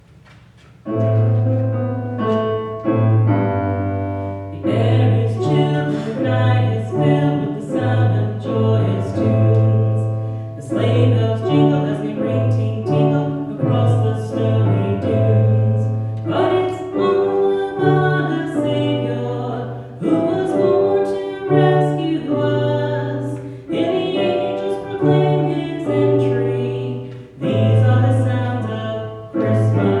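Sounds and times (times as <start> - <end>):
christmas song with piano: 0.0 - 30.0
person singing: 4.5 - 30.0.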